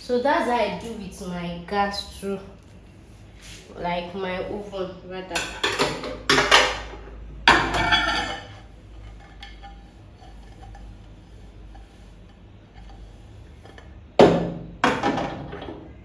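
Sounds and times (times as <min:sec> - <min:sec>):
kitchenware clink: 0:05.4 - 0:06.9, 0:07.5 - 0:08.6.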